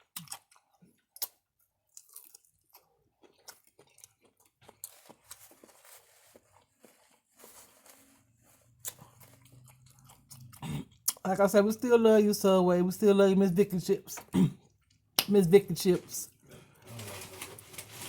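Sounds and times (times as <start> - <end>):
person chewing food: 0.0 - 11.3, 14.2 - 15.3.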